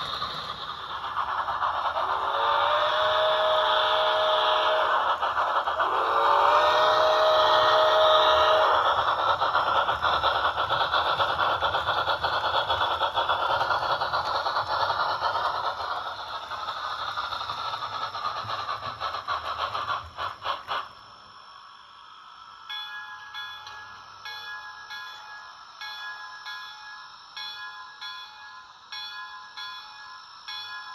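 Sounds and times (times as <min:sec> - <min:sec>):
model train rattling: 0:00.0 - 0:21.7
steam whistle: 0:02.1 - 0:09.3.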